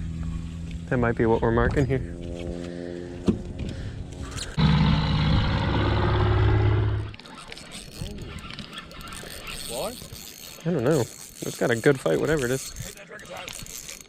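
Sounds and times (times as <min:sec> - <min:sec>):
boat motor humming: 0:02.2 - 0:11.8.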